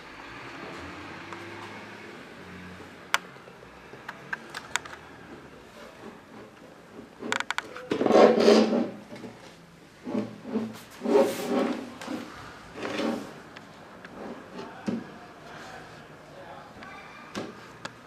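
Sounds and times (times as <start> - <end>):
wooden parts scraping: 5.9 - 14.8.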